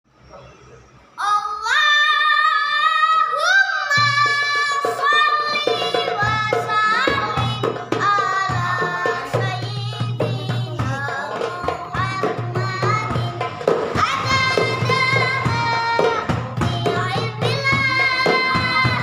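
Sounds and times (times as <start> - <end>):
child singing: 1.2 - 19.0
frame drums beating: 3.9 - 19.0.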